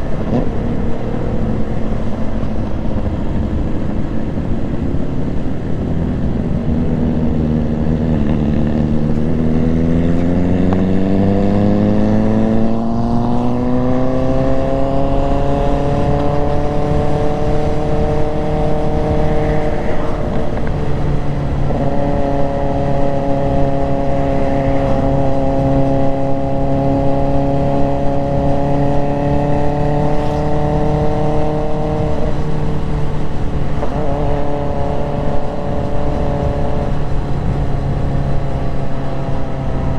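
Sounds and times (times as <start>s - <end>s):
motorcycle engine revving: 0.0s - 39.9s
wind rushing: 14.0s - 36.8s.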